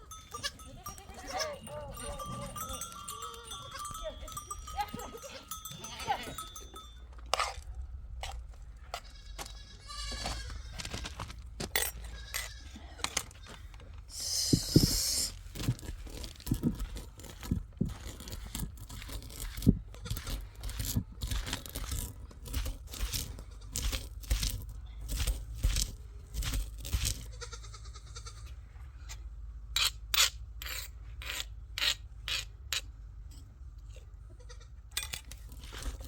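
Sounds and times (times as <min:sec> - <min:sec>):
sheep and goats bleating: 0:00.0 - 0:06.9, 0:08.9 - 0:11.0, 0:12.0 - 0:15.4, 0:19.9 - 0:20.8, 0:27.2 - 0:28.6, 0:34.3 - 0:34.8.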